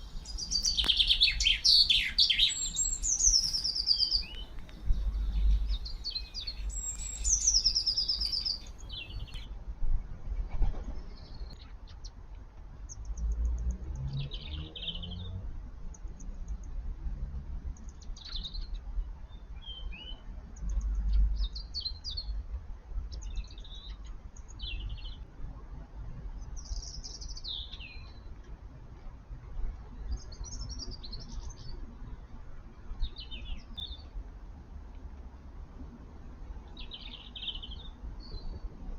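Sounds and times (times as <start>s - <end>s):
garden birds chirping: 0.0s - 9.5s, 11.0s - 15.4s, 23.1s - 25.3s, 26.3s - 28.4s, 29.9s - 32.2s, 32.8s - 34.3s, 35.8s - 38.9s
low rumble: 0.0s - 9.5s.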